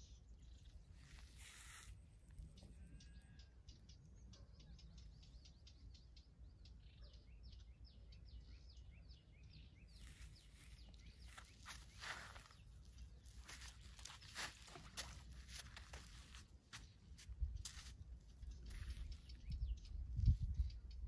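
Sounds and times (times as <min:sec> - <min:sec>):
footsteps on sand: 0:01.0 - 0:02.0, 0:09.9 - 0:19.5
bird chirping: 0:02.4 - 0:21.0.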